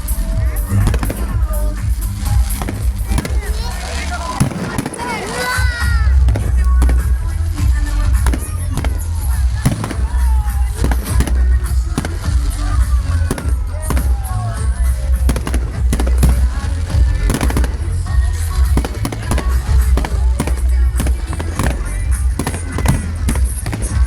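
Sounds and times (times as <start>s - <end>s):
fireworks bangs and crackles: 0.0s - 24.0s
constant low rumble: 5.8s - 24.0s.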